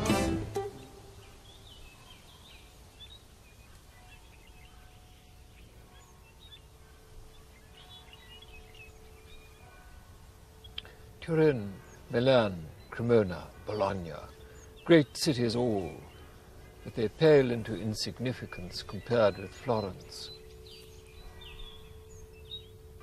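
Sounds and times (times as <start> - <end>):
plucked-string music: 0.0 - 1.2
open-air hush: 0.0 - 23.0
faint bird chirps: 0.6 - 23.0.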